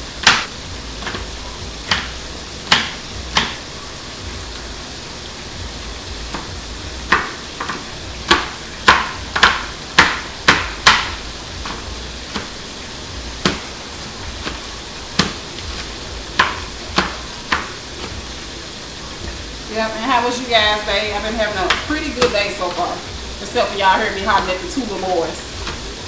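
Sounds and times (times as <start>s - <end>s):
chicken sizzling in oil: 0.0s - 26.0s
knife chopping on cutting board: 0.2s - 3.6s, 6.3s - 12.6s, 13.4s - 13.7s, 14.4s - 18.2s, 21.7s - 22.4s.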